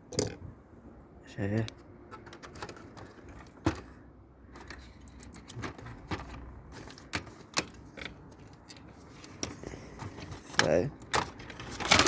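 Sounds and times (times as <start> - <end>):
small metal parts clinking: 4.5 - 9.6.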